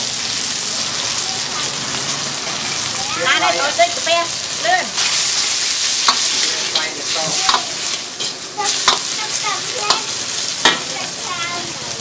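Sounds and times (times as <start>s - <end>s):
food sizzling in pan: 0.0s - 12.0s
utensil tapping against pan: 8.8s - 9.1s, 9.9s - 10.9s.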